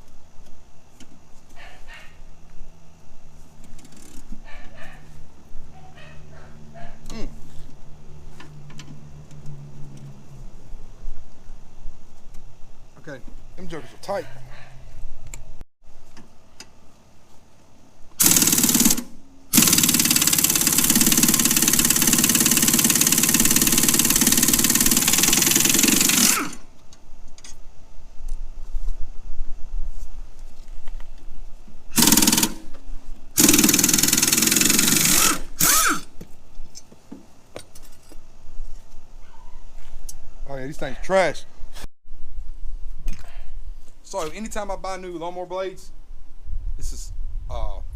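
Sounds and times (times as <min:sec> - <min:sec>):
impact wrench hammering: 0:18.2 - 0:26.6, 0:32.0 - 0:32.7, 0:33.4 - 0:36.1.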